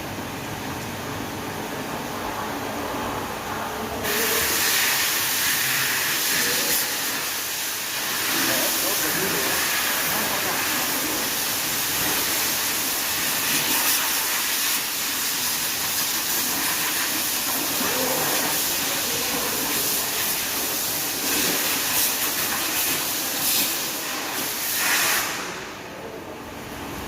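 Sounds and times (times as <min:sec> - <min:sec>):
machine sander hissing: 0:04.0 - 0:25.6.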